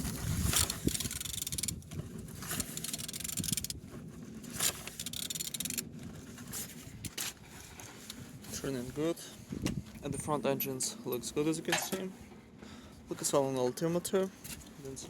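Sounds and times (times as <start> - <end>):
engine being turned by hand: 0.0 - 8.1.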